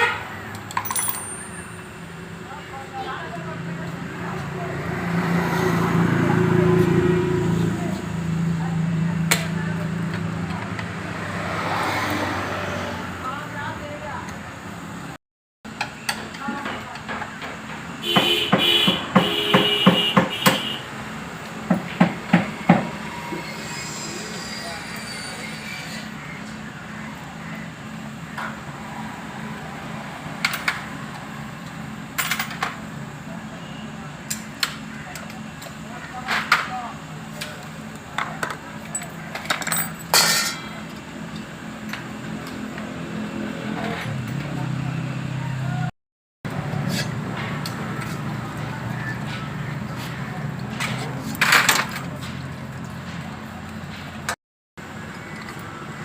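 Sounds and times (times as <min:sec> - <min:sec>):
metal tools clinking: 0:00.7 - 0:01.9, 0:38.8 - 0:40.7.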